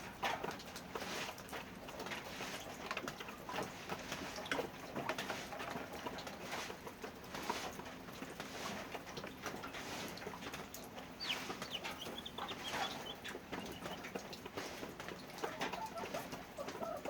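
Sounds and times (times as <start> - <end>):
chickens clucking: 1.9 - 17.0
clicks and scratches: 6.5 - 16.8
cooing bird calls: 11.1 - 14.1, 15.4 - 17.0.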